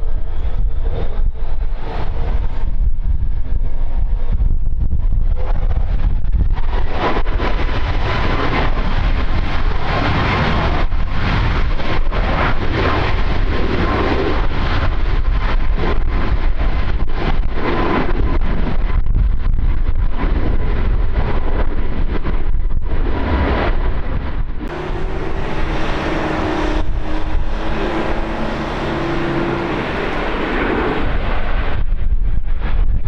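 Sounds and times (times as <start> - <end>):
wind buffeting microphone: 0.0 - 33.0
engine hum: 20.7 - 32.1
low steady tones: 24.0 - 31.8.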